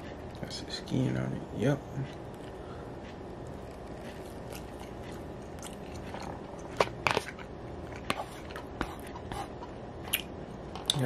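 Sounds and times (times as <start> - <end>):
person chewing with wet clicks: 3.2 - 7.4, 10.1 - 11.0.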